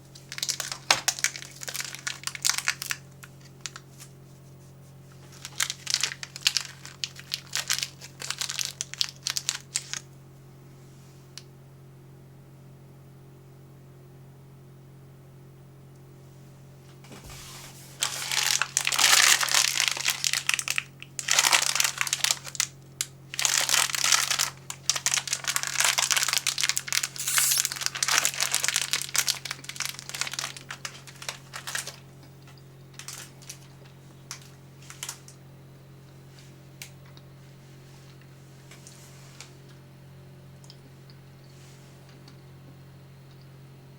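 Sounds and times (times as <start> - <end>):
snack packaging crinkling: 0.2 - 4.0, 5.1 - 10.1, 18.0 - 22.7, 23.3 - 32.0, 32.9 - 35.4.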